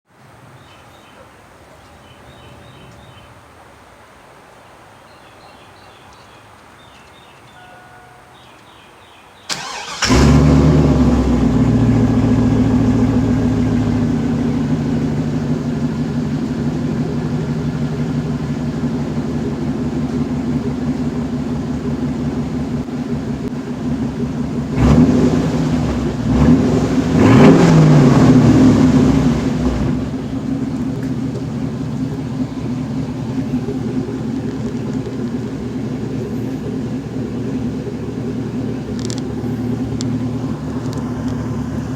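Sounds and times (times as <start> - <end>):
engine revving: 9.5 - 41.9
engine starting and idling: 9.5 - 41.9.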